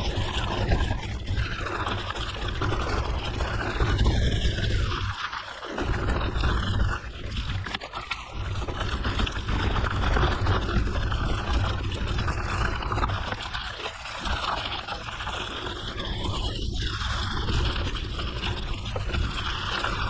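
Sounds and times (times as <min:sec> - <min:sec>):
wind buffeting microphone: 0:00.0 - 0:05.1.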